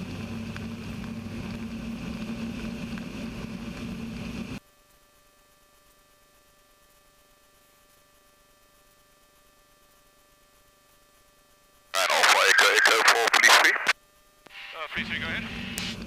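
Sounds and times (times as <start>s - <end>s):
aircraft engine and propeller droning: 0.0s - 4.6s.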